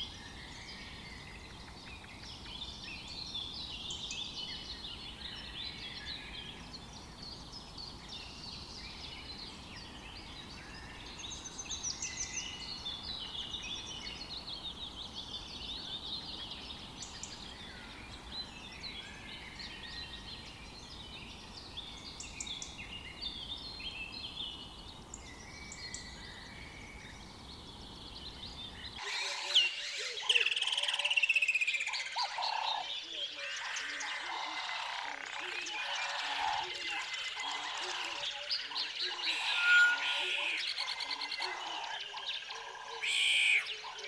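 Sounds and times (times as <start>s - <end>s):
low background hiss: 0.0s - 29.0s
birds chirping and trilling: 0.0s - 44.0s.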